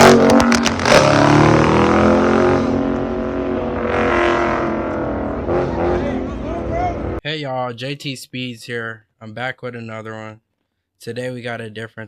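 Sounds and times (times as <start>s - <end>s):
car engine revving: 0.0s - 7.2s.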